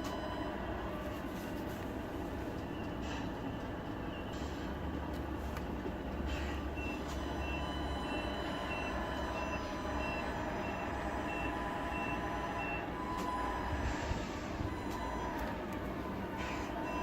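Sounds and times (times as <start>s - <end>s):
reversing beeper: 6.7s - 15.3s.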